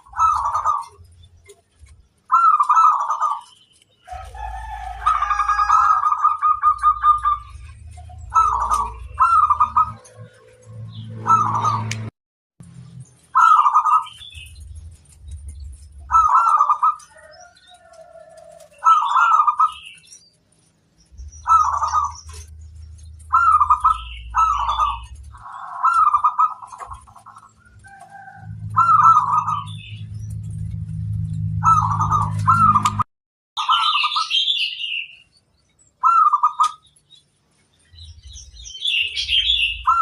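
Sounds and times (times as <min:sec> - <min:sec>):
dove cooing: 0:00.0 - 0:01.6, 0:02.3 - 0:10.4, 0:13.4 - 0:14.4, 0:16.0 - 0:20.0, 0:21.4 - 0:29.9, 0:31.6 - 0:33.0.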